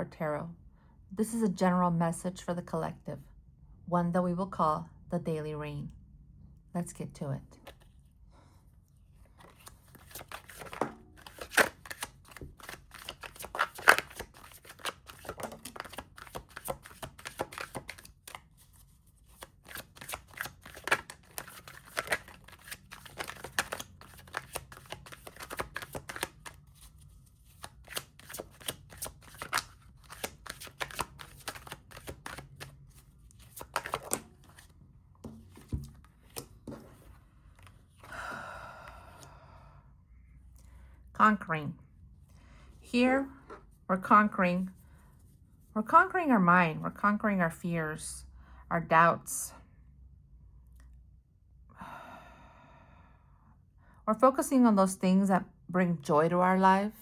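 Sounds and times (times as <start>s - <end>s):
cards being shuffled: 7.6s - 8.0s, 9.4s - 37.8s.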